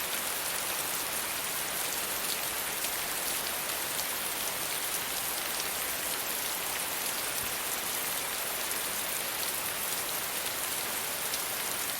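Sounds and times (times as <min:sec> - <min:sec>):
gentle rain falling: 0:00.0 - 0:11.9.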